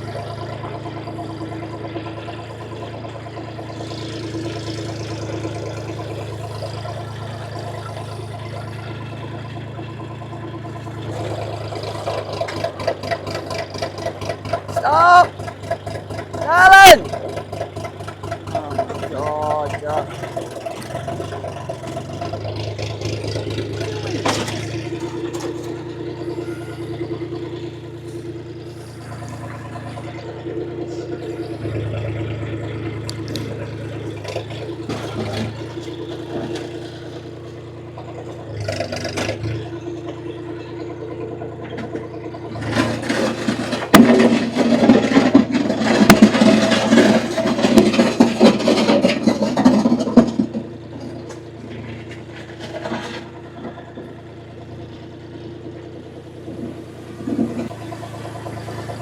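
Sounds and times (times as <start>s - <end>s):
tractor engine running: 0.0s - 59.0s
rough scraping and crunching: 17.1s - 40.7s, 41.7s - 54.0s.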